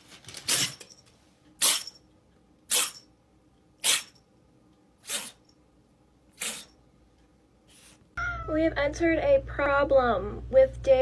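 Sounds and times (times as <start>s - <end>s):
cat sneezing: 3.8s - 4.1s, 5.0s - 5.4s, 6.4s - 6.7s.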